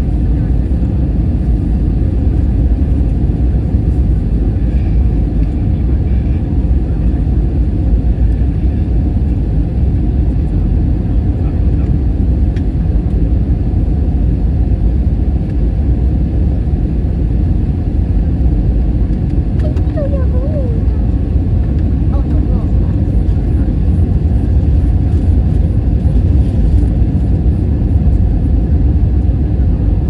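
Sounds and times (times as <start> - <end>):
airplane cabin engine rumble: 0.0 - 30.0.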